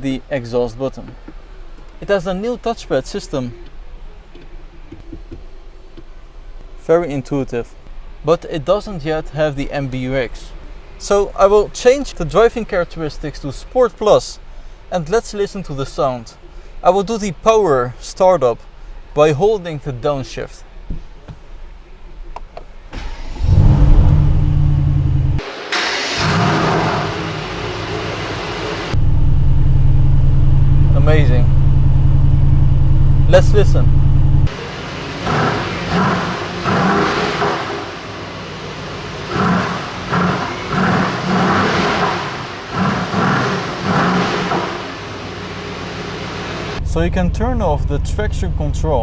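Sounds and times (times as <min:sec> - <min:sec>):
car engine revving and idling: 0:23.0 - 0:49.0.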